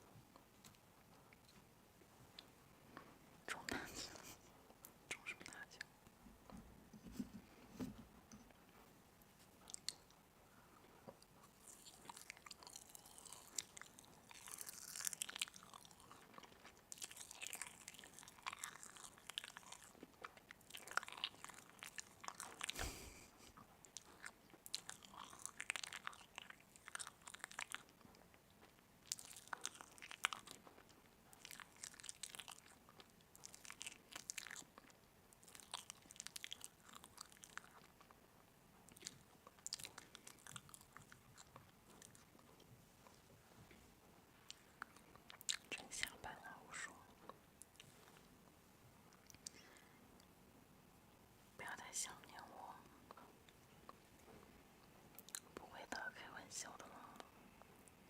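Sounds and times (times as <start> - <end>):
crunchy food chewing: 9.6 - 10.2, 11.0 - 38.2, 38.8 - 43.5, 44.4 - 48.3, 55.1 - 55.6.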